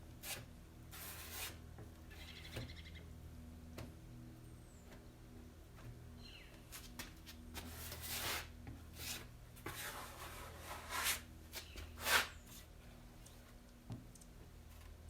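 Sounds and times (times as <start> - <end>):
filler scraping across metal: 0.2 - 1.6, 7.6 - 12.7.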